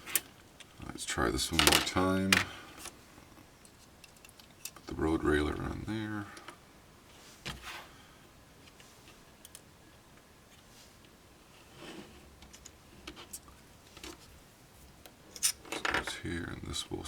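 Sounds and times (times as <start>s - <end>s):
small plastic parts clicking: 3.6s - 4.9s, 12.4s - 14.3s.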